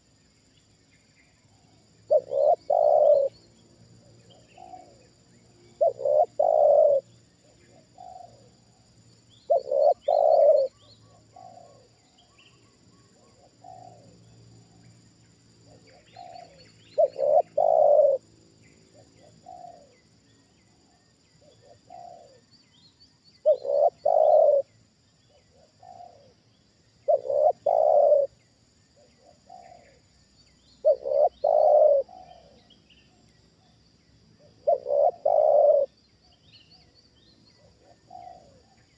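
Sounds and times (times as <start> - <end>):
small birds chirping: 0.0 - 38.9
dove cooing: 2.1 - 3.4, 4.3 - 5.1, 5.7 - 8.6, 9.5 - 12.0, 13.2 - 14.2, 15.7 - 18.3, 19.0 - 20.0, 21.4 - 22.4, 23.4 - 24.7, 25.3 - 26.3, 27.0 - 28.4, 29.0 - 30.0, 30.8 - 32.6, 34.5 - 36.0, 37.6 - 38.9.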